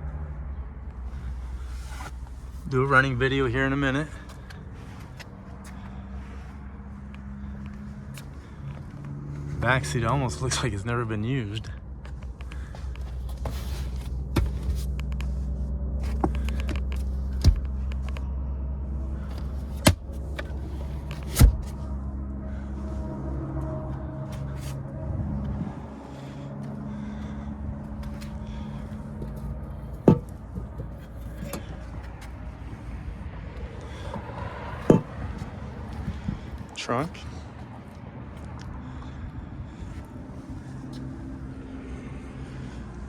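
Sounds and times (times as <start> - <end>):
car engine idling: 0.1 - 37.9
sharp knocks and clicks: 29.2 - 31.7.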